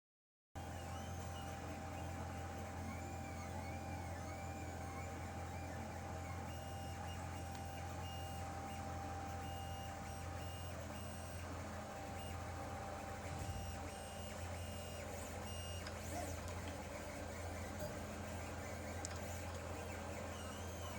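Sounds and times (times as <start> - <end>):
printer motors whining: 0.6 - 20.9.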